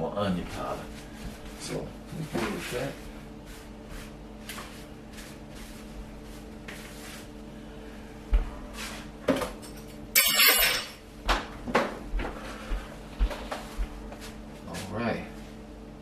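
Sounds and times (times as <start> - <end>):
steady low hum: 0.0 - 16.0
cookware clattering: 9.7 - 11.0.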